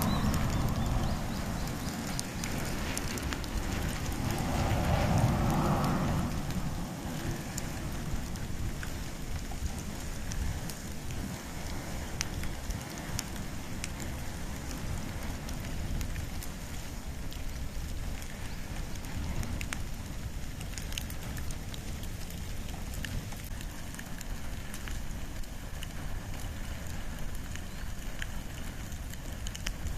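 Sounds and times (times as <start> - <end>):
fire crackling and popping: 0.0 - 29.9.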